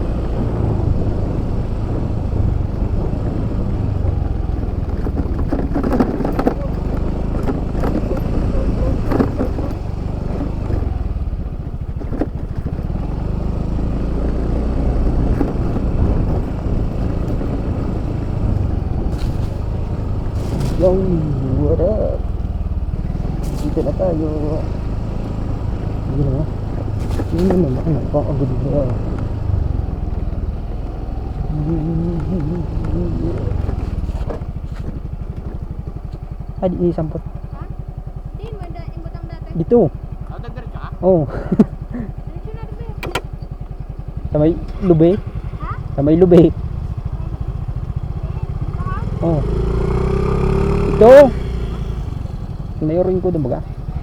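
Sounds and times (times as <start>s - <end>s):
scooter engine rumble: 0.0s - 54.0s
person speaking: 20.7s - 22.3s, 27.3s - 29.2s, 31.4s - 33.8s.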